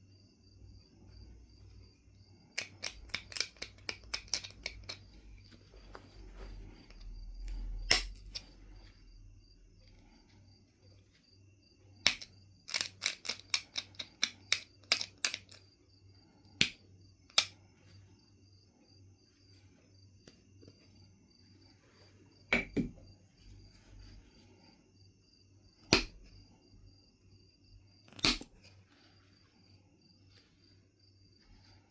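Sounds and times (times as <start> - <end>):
stone knapping clicks: 2.6 - 5.1, 12.0 - 15.6, 28.1 - 28.6.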